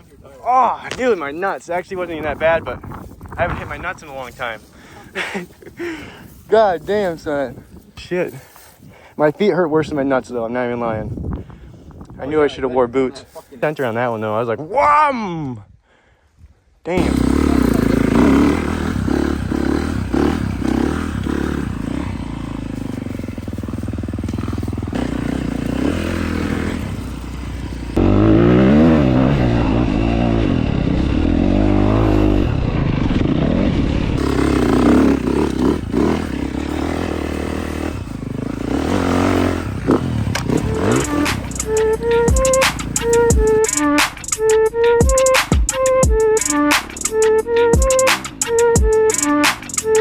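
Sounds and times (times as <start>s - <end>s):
atv engine revving: 17.0s - 44.2s.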